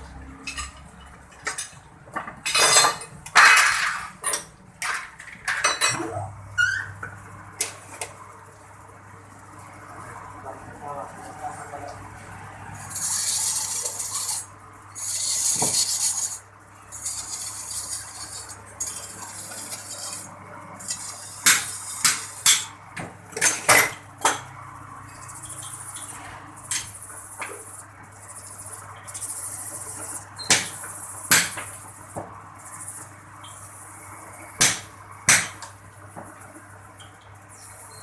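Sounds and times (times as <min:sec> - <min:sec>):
metal scraping: 0:12.8 - 0:22.5.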